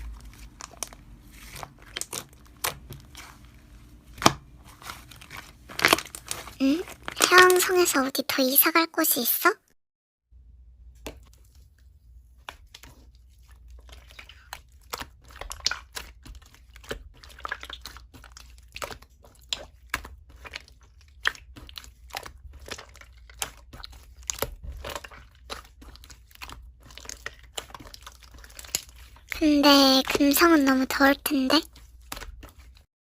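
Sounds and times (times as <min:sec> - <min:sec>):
slime squishing sticky pops: 0:00.0 - 0:03.5, 0:04.1 - 0:07.6, 0:13.7 - 0:31.3
low steady hum: 0:00.0 - 0:07.9.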